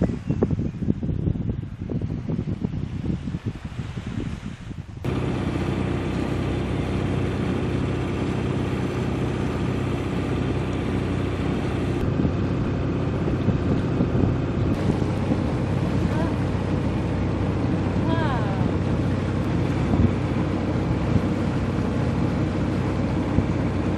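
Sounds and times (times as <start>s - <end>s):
wind on microphone: 0.0s - 23.9s
boat engine running: 4.9s - 23.9s.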